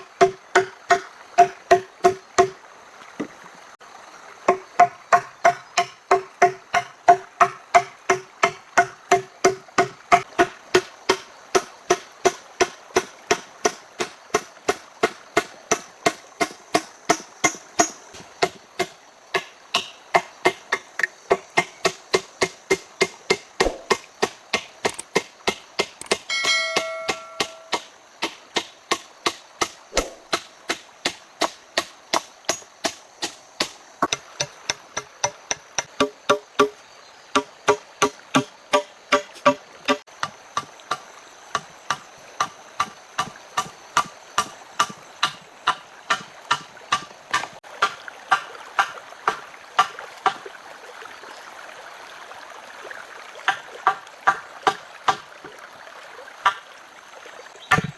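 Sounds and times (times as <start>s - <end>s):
hand tool striking rhythmically: 26.0s - 27.9s, 33.2s - 36.8s
short ringing tone: 26.3s - 27.8s.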